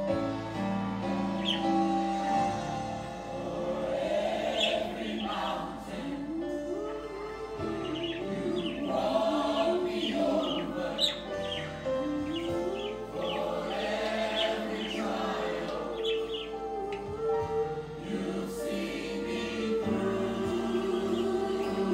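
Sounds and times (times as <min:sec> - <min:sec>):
gospel choir music: 0:00.0 - 0:21.9
bird chirping: 0:01.2 - 0:06.2, 0:07.1 - 0:17.3.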